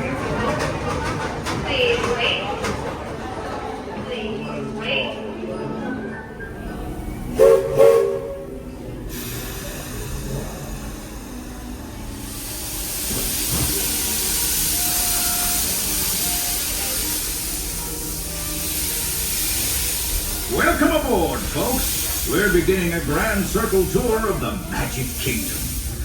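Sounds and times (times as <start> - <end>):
steam locomotive whistle toots: 7.2 - 8.6
steam venting hiss: 9.0 - 26.0.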